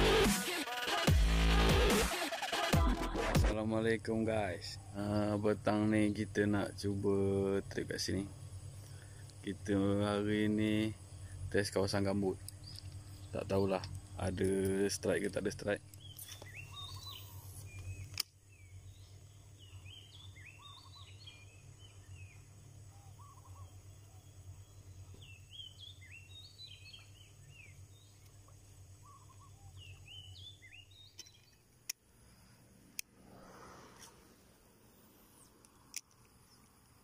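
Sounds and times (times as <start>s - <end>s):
birds chirping and whistling: 15.6s - 31.6s
sharp click: 17.8s - 18.4s, 35.6s - 36.4s.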